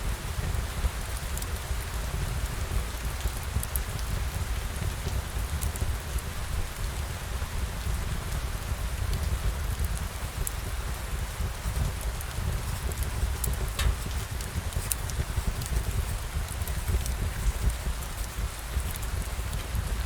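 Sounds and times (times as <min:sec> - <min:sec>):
steady rain falling: 0:00.0 - 0:20.0
light drop ticks: 0:13.4 - 0:14.2.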